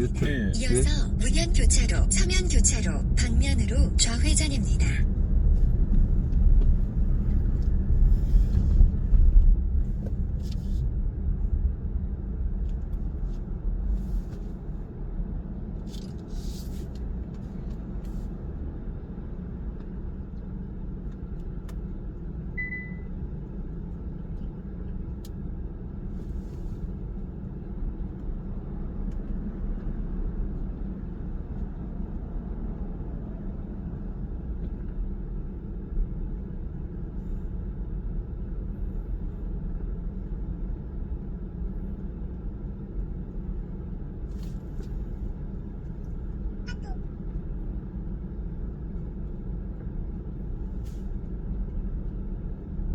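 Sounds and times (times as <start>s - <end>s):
car tyres and engine rumble: 0.0s - 52.9s
short high beep: 22.6s - 23.1s.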